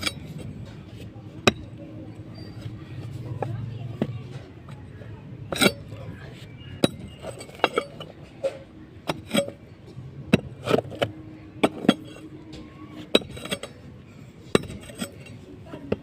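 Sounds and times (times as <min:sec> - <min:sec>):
metal tool striking bricks: 0:00.0 - 0:00.8, 0:01.4 - 0:01.8, 0:05.5 - 0:13.8, 0:14.5 - 0:16.0.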